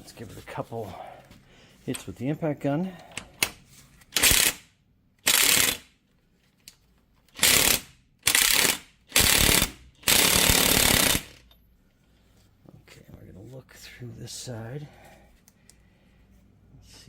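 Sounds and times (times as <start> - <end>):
impact wrench hammering: 7.4 - 11.4.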